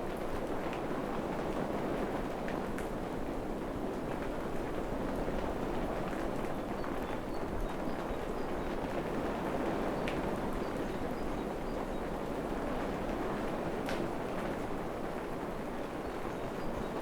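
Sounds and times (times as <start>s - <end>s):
rain falling on forest: 0.0s - 17.0s.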